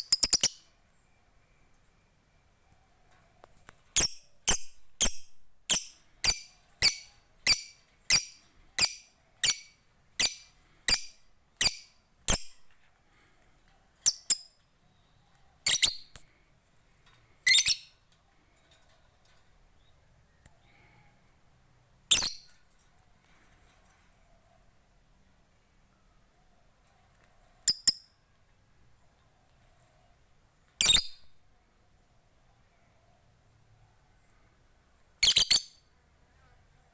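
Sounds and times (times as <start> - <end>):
lovebird shrill calls: 0.0 - 0.6, 4.0 - 12.5, 35.2 - 35.8.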